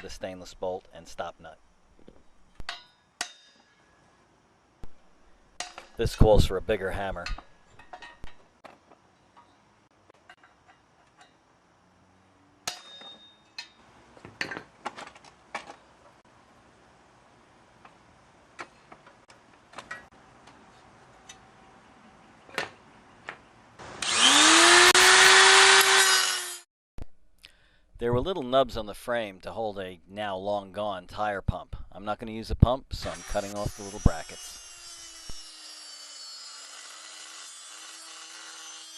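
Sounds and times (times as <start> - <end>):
metal knocks and clinks: 12.6 - 15.2
power tool motor whining: 23.8 - 26.6.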